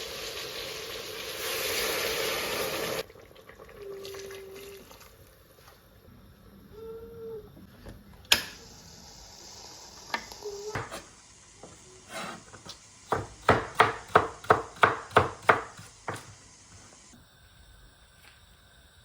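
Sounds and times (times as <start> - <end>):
knife chopping on wooden board: 12.1 - 16.4.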